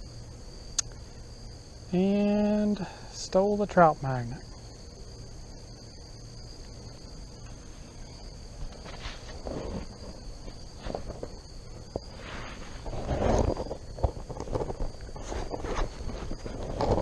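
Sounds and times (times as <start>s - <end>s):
insects droning: 0.0s - 17.0s
scuffing and rustling: 8.5s - 17.0s.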